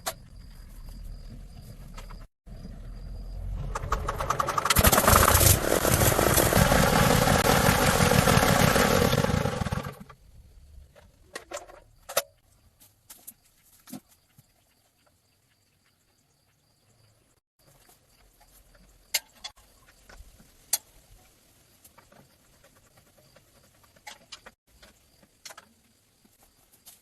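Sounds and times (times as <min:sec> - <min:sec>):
small engine running: 0:02.6 - 0:10.2.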